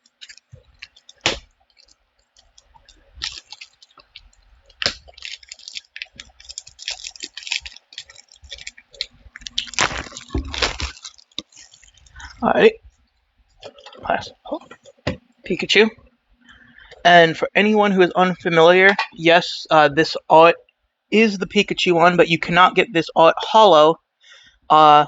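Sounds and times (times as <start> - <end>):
packaging clicking and crinkling: 0.0 - 12.4, 13.6 - 15.2.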